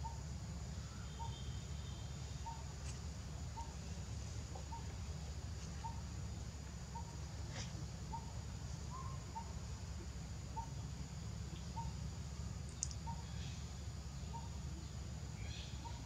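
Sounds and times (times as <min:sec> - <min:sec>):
bird chirping: 0:00.8 - 0:02.7, 0:03.4 - 0:05.1, 0:05.7 - 0:06.1, 0:06.8 - 0:16.0
sharp click: 0:12.7 - 0:13.0.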